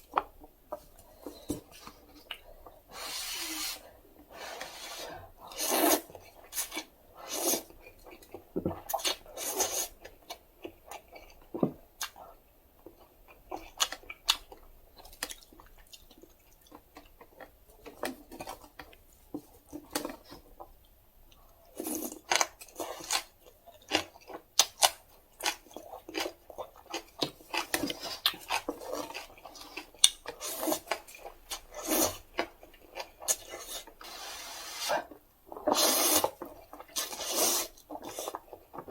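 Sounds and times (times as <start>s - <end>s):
noodle slurping: 2.9s - 7.6s, 33.4s - 36.4s, 37.0s - 38.4s.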